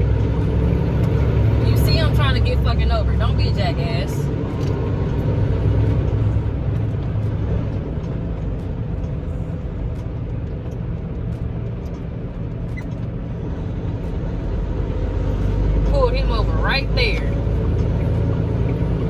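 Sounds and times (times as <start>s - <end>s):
road noise: 0.0s - 19.0s
truck engine hum: 0.0s - 19.0s.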